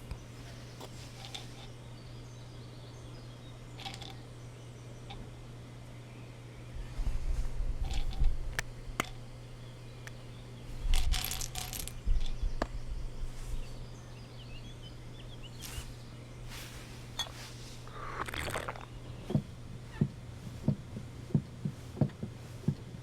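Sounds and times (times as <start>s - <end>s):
low steady hum: 0.0s - 23.0s
small hard objects clicking: 3.8s - 4.2s, 10.9s - 12.7s.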